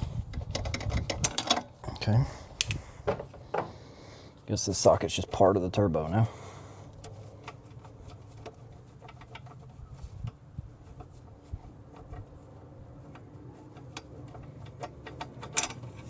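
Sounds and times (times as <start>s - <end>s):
hand tools tapping on metal: 2.6s - 3.8s.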